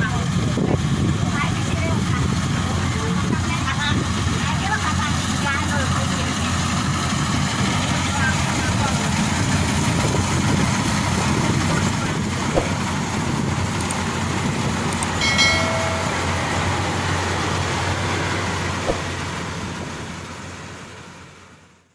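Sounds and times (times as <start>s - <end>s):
combine harvester running: 0.0s - 21.9s
brief higher tone: 15.2s - 16.7s.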